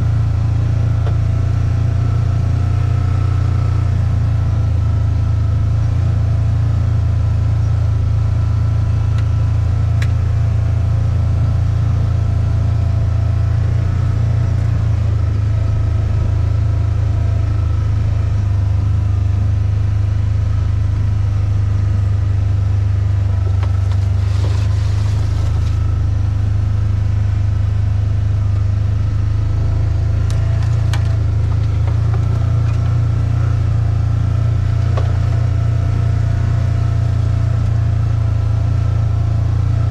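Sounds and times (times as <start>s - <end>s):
motor vehicle droning: 0.0s - 39.9s
brief rustle or scrape: 23.9s - 25.8s.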